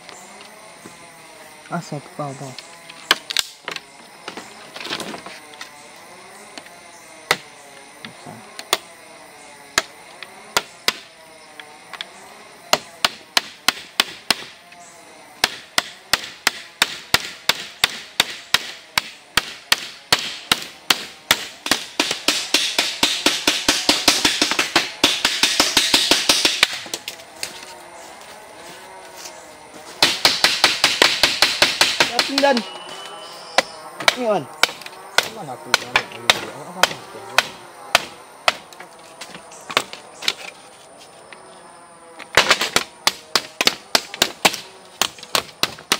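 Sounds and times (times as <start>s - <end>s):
sharp blows on wood: 9.7s - 11.1s, 12.7s - 14.6s, 15.4s - 27.6s, 29.8s - 40.4s, 42.3s - 45.9s.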